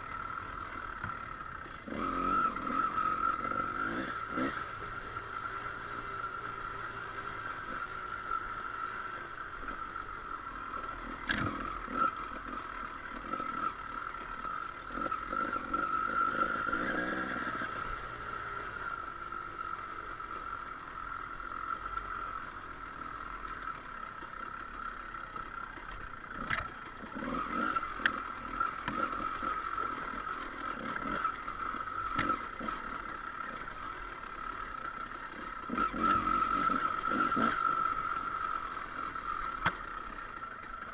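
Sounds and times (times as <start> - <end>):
motorcycle engine running: 0.0 - 40.9
knocks and clatter from bike: 11.2 - 12.0, 25.3 - 29.4, 32.1 - 32.8.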